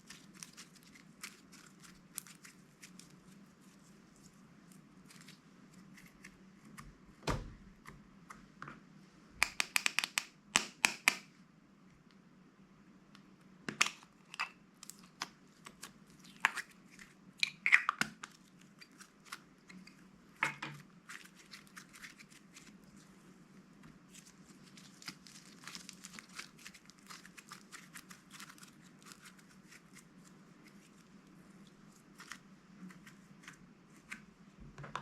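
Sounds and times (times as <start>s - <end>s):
plastic packaging crinkling: 0.0s - 4.4s, 21.0s - 23.1s, 24.1s - 31.1s.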